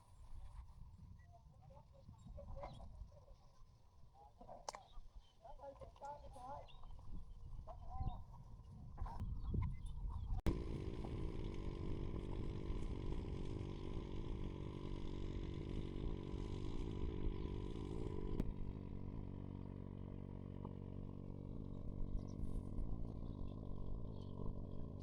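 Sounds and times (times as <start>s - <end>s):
engine running: 9.2s - 25.0s.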